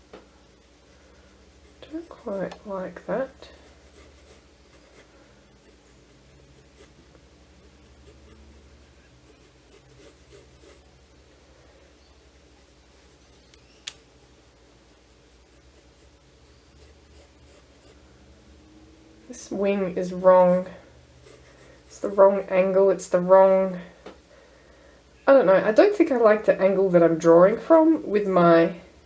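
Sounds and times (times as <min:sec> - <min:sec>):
pencil scratching on paper: 0:00.5 - 0:11.0, 0:11.9 - 0:18.0, 0:20.0 - 0:22.8.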